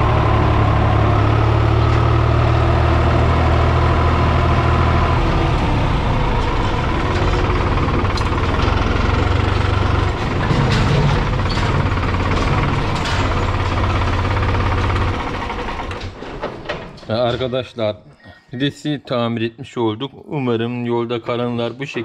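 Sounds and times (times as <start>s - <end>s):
tractor diesel engine running: 0.0s - 17.7s.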